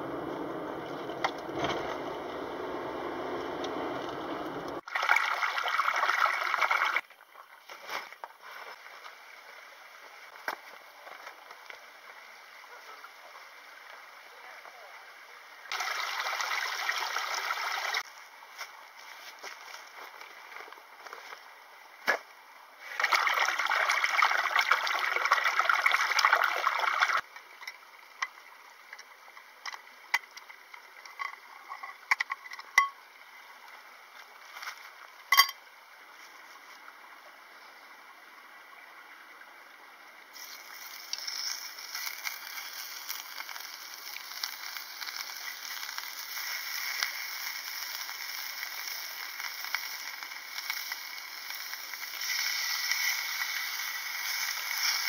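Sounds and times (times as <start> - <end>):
steaks sizzling in frying pan: 40.4 - 55.0.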